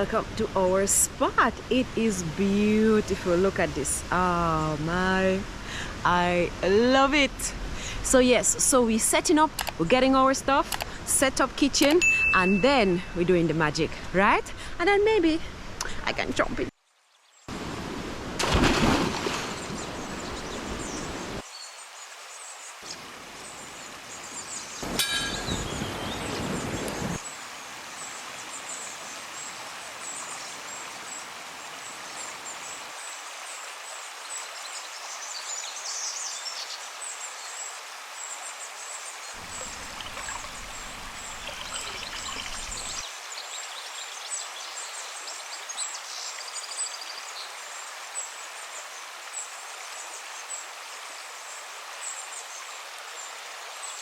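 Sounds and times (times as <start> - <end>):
river water running: 0.0 - 54.0
birds chirping: 2.0 - 14.0, 18.6 - 27.3, 38.3 - 47.5.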